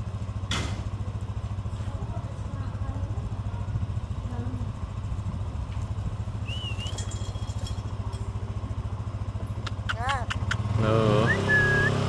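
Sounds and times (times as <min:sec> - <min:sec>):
engine idling: 0:00.0 - 0:12.0
bird chirp: 0:09.6 - 0:12.0.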